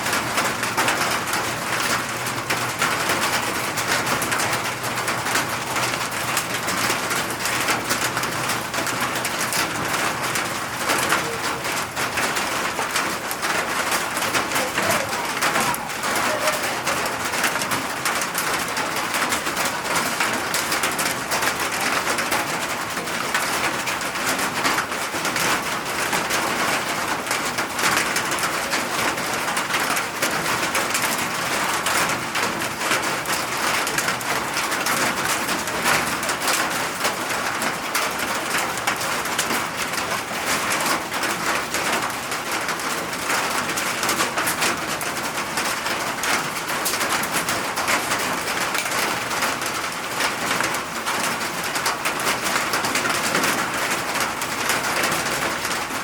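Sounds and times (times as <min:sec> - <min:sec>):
steady rain falling: 0:00.0 - 0:56.0
dove cooing: 0:09.5 - 0:19.1.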